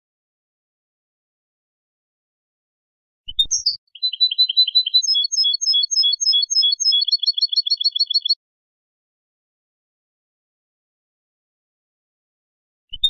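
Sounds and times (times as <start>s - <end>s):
goldfinch song: 3.3s - 8.4s.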